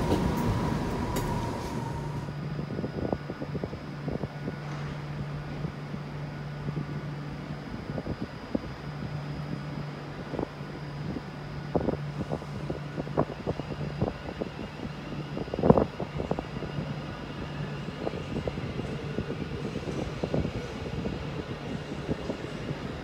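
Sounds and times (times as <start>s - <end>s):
train humming: 0.0s - 3.4s, 8.6s - 23.0s.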